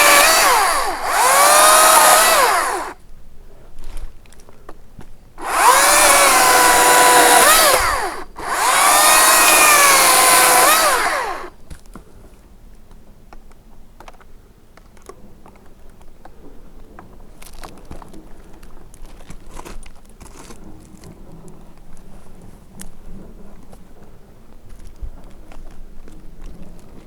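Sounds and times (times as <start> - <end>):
chainsaw motor whine: 0.0 - 3.0, 5.4 - 11.6.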